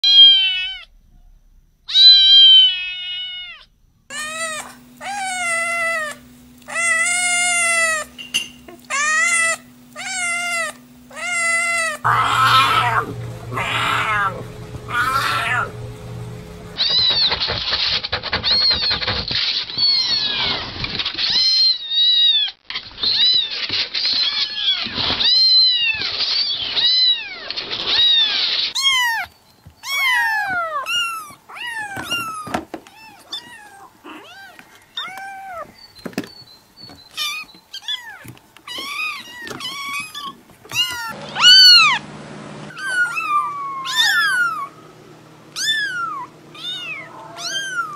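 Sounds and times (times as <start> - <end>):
kittens meowing: 0.0 - 0.9, 1.9 - 17.0, 26.7 - 35.8, 37.1 - 42.0, 42.7 - 44.8, 45.5 - 47.9
cougar rough calls: 12.0 - 16.6.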